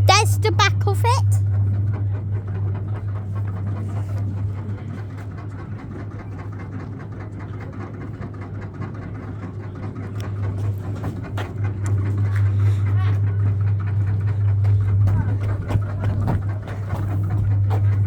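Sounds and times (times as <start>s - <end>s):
steady low hum: 10.1s - 18.0s.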